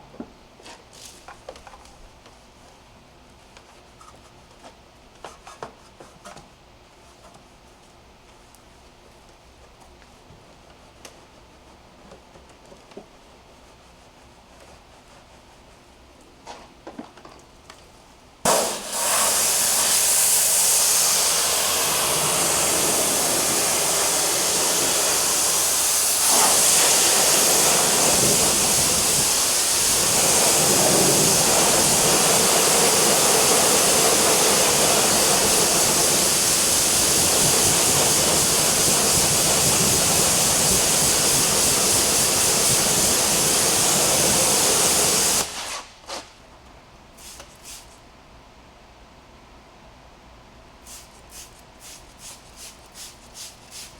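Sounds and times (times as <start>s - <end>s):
pressure washer spraying water: 18.5s - 45.9s, 50.9s - 53.9s.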